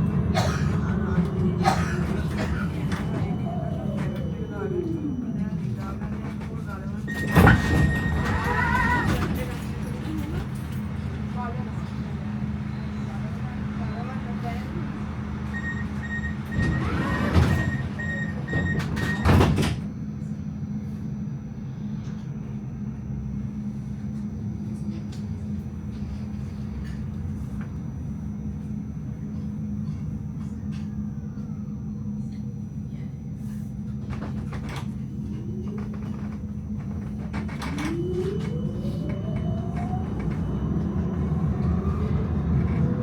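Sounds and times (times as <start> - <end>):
low hum: 0.0 - 7.1, 34.0 - 43.0
traction motors whining: 0.0 - 19.8, 33.9 - 43.0
tram door warning beeps: 0.0 - 20.2, 23.1 - 43.0.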